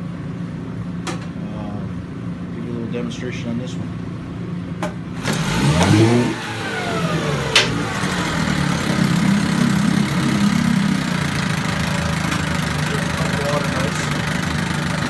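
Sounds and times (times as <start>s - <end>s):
outboard motor running: 5.2s - 15.0s.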